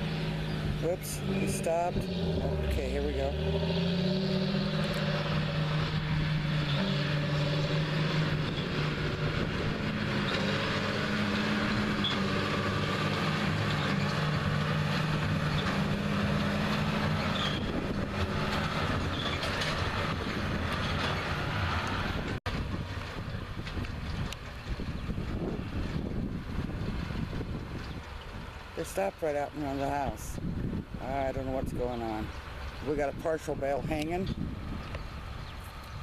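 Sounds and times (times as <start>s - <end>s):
tractor diesel engine hum: 0.0s - 36.0s.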